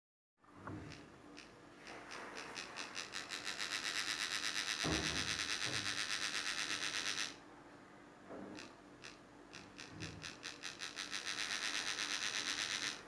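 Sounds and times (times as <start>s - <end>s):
pulsing high electronic buzz: 1.9s - 7.4s, 8.6s - 13.0s.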